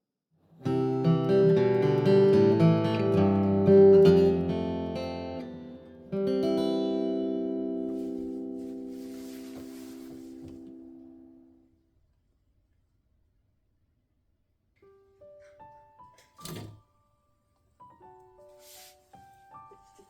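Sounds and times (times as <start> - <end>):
acoustic guitar plucked notes: 0.6 - 11.4.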